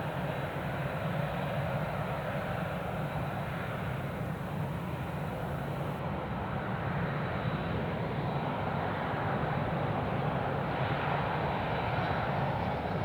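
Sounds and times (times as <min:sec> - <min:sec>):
jet engines rumbling: 0:00.0 - 0:06.0.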